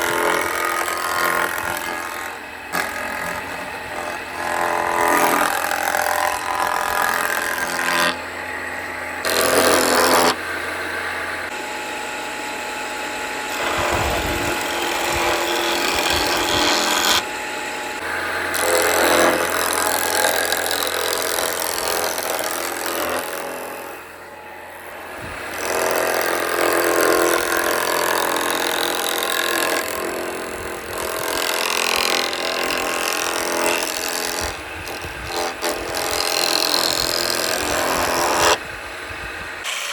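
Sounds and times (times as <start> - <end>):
motor hum: 0.0 - 39.9
woodworking machine cutting wood: 0.0 - 39.9.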